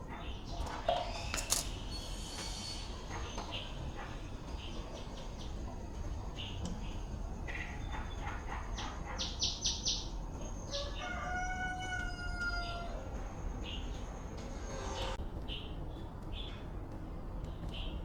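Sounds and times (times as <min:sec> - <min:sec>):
low background noise: 0:00.0 - 0:18.0
rooster crowing: 0:10.7 - 0:13.2.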